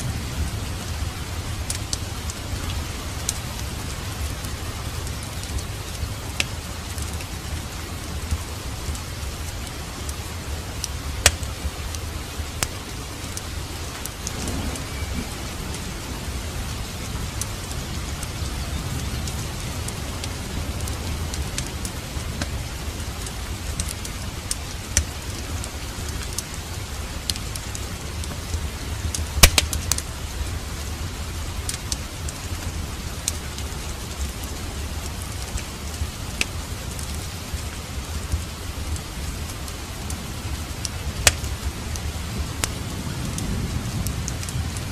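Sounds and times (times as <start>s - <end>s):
fire crackling and popping: 0.0s - 44.9s
steady rain: 0.0s - 44.9s.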